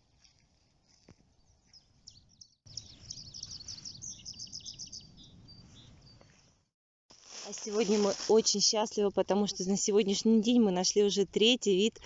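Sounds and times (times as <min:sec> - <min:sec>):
birds chirping: 0:01.4 - 0:06.5
bird trill: 0:01.7 - 0:06.2.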